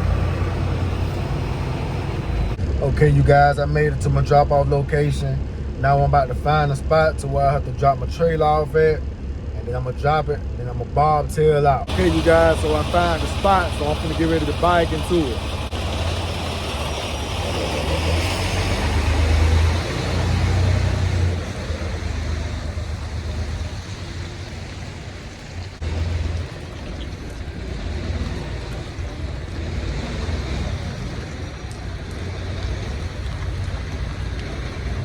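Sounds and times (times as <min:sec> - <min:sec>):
diesel truck engine low rumble: 0:00.0 - 0:35.0.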